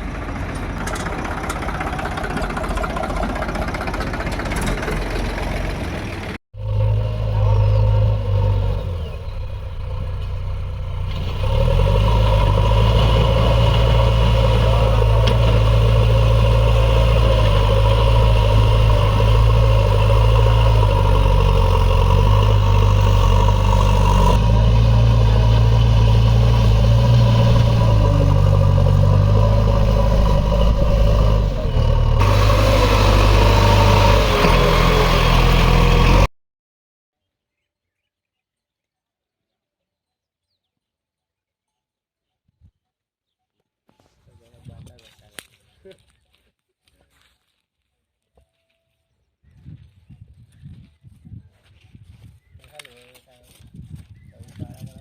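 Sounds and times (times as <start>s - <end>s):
diesel engine revving: 0.0s - 36.3s.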